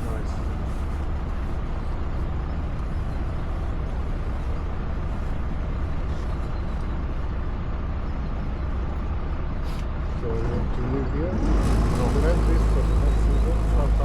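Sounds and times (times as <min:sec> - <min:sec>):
boat engine running: 0:09.9 - 0:14.0.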